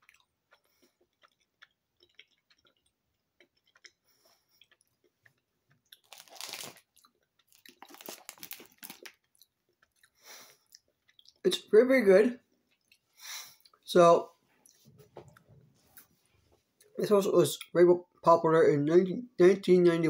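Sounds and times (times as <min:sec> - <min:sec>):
chewing gummy snack: 0:00.0 - 0:11.4.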